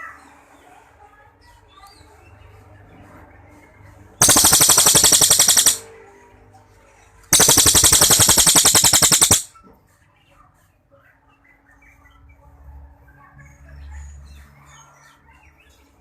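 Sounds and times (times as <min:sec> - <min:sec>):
songbird rapid trills: 0:04.2 - 0:05.8, 0:07.4 - 0:09.5.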